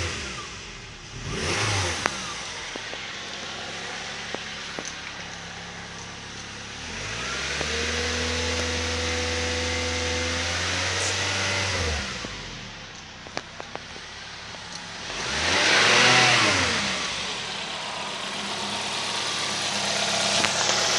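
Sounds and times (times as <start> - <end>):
car engine idling and revving: 0.0 - 20.9.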